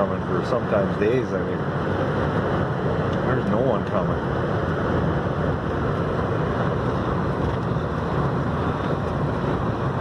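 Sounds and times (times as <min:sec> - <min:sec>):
truck engine and road noise: 0:00.0 - 0:10.0
wind blowing against truck: 0:04.0 - 0:10.0.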